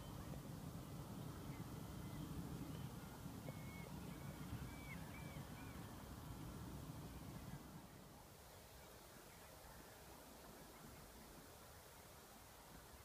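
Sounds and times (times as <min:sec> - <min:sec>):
faint bird calls: 0:00.0 - 0:06.2.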